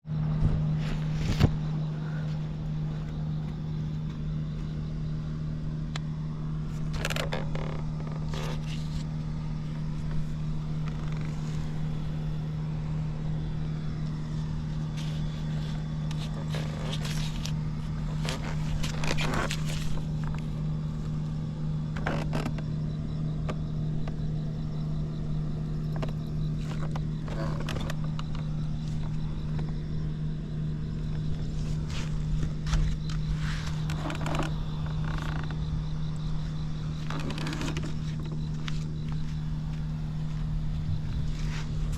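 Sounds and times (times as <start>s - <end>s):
scooter engine idling: 1.0s - 41.9s
scrapes and rattles: 14.2s - 20.6s, 36.9s - 41.9s.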